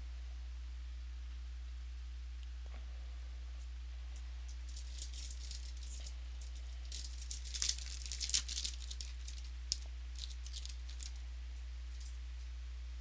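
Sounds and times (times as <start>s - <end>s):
low electrical hum: 0.0s - 13.0s
wrapper crinkling and tearing: 4.5s - 11.2s.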